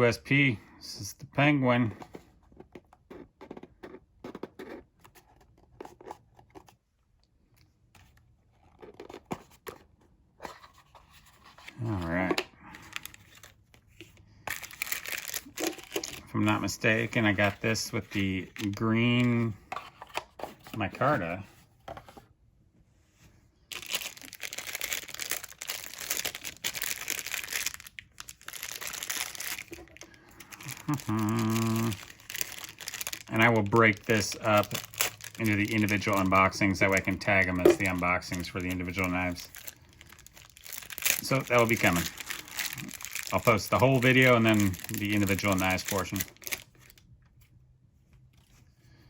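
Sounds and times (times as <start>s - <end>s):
crinkly packaging being unwrapped: 10.4s - 21.2s, 23.7s - 47.1s.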